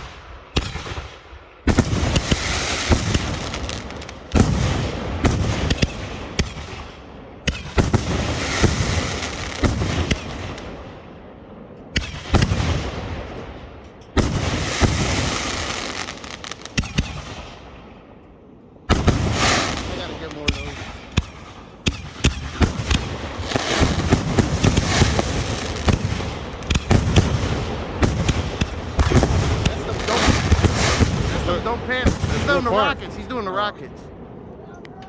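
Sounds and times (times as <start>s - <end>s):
firework bangs: 0.0s - 18.2s, 18.8s - 34.5s
firework crackle: 1.7s - 6.9s, 7.5s - 10.8s, 14.2s - 17.4s, 18.9s - 33.4s.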